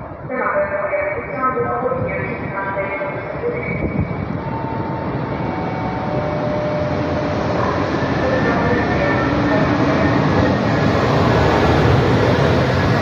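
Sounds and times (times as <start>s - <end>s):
electric train passing: 3.2s - 13.0s.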